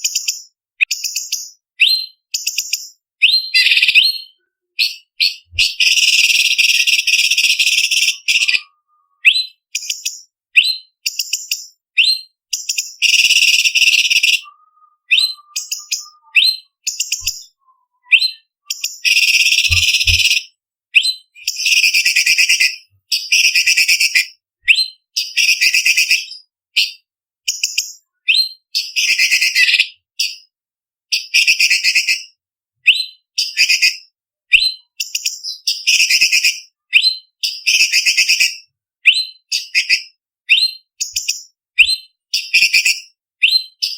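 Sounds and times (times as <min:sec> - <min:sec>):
bird singing: 0:00.0 - 0:26.5.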